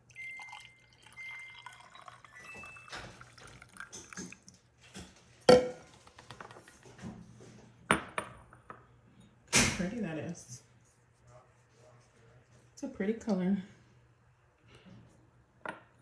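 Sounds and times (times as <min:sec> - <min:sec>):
glass and cup clinking: 0:00.1 - 0:04.4, 0:05.5 - 0:05.9
tea pouring into glass: 0:00.1 - 0:04.6.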